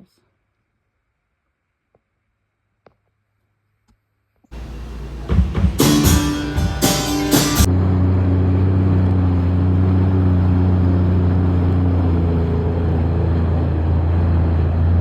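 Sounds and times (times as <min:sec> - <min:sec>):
guitar music: 0:04.6 - 0:07.7
vehicle engine running: 0:04.6 - 0:15.0.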